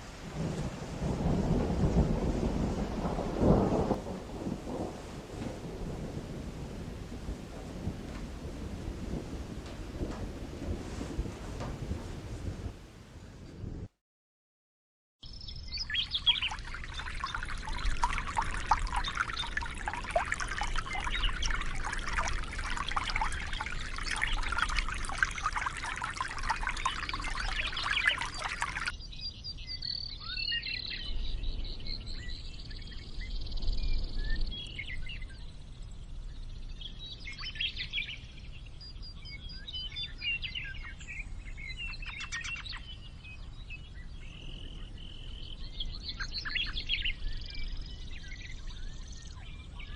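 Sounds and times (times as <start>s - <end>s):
birds chirping: 15.2s - 32.4s
water pouring: 16.0s - 28.9s.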